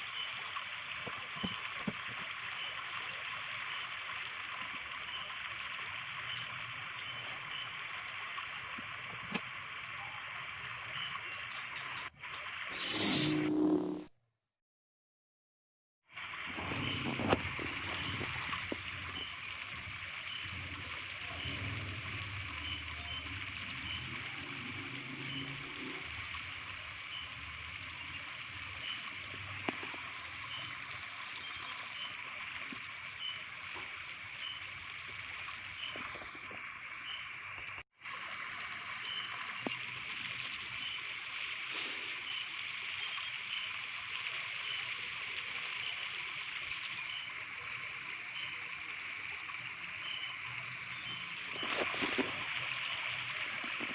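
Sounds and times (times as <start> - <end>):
faint regular chirping: 0.0 - 9.4, 16.6 - 46.1
running water hiss: 0.0 - 13.4, 16.1 - 53.9.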